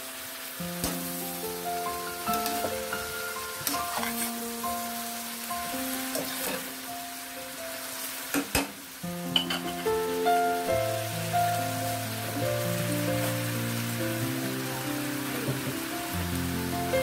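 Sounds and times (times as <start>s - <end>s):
meat sizzling in a pan: 0.0s - 17.0s
background music: 9.1s - 17.0s.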